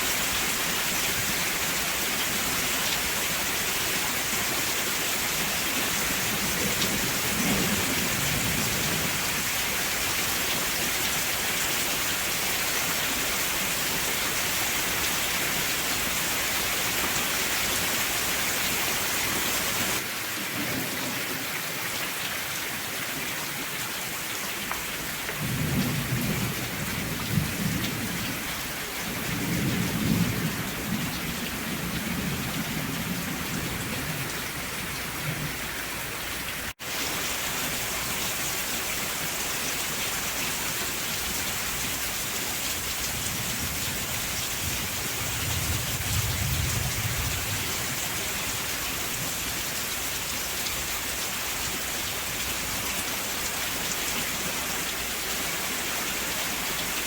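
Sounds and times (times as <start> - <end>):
steady rain falling: 0.0 - 57.0
thunder rumbling: 6.2 - 9.5, 25.4 - 35.6, 43.0 - 48.2.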